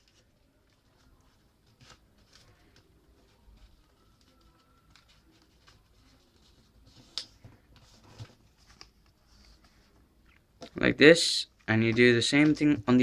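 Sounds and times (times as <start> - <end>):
paper crinkles: 0.0 - 10.0
paper rustling: 0.0 - 10.0.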